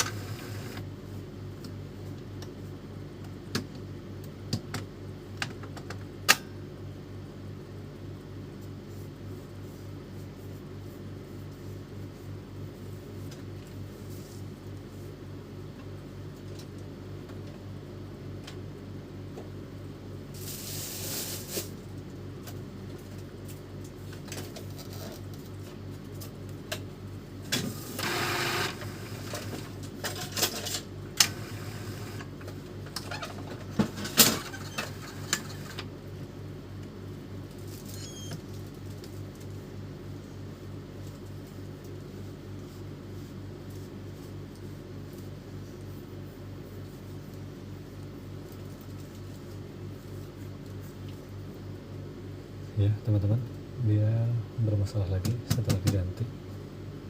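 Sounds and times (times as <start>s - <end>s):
printer whirring: 0.0s - 0.9s, 27.9s - 29.7s, 31.2s - 32.4s
printer motor hum: 0.0s - 1.0s, 27.5s - 30.0s, 31.0s - 32.8s.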